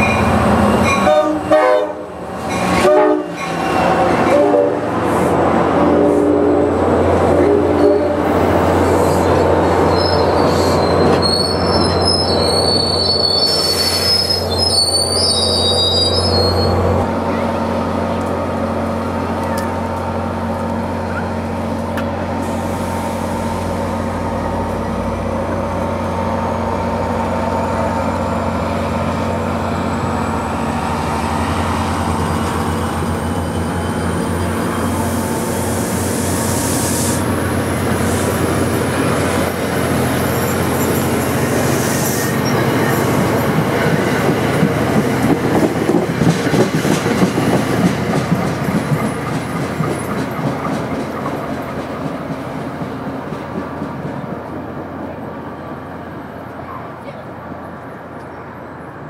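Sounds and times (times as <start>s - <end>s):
locomotive engine humming: 15.5s - 59.0s.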